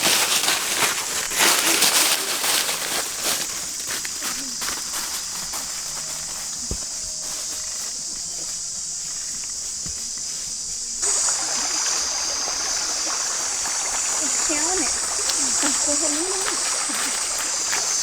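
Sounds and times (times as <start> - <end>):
stream hiss: 0.0 - 18.0
faint water trickling: 8.0 - 18.0.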